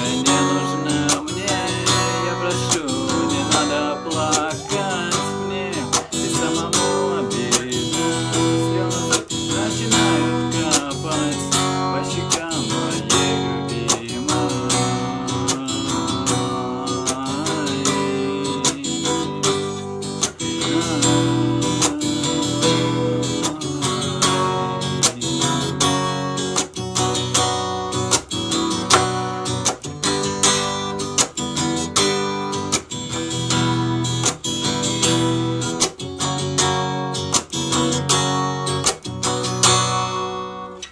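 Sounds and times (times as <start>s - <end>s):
acoustic guitar strumming: 0.0s - 40.9s.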